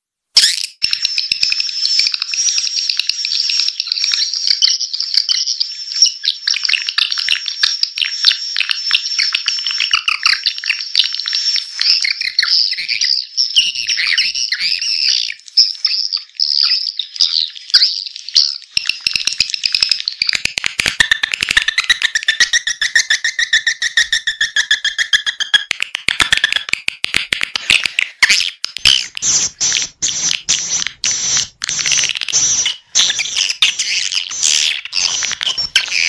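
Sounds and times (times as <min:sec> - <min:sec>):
rapid clicks: 0:18.7 - 0:22.9, 0:24.0 - 0:36.0
swiftlets twittering: 0:27.6 - 0:36.0.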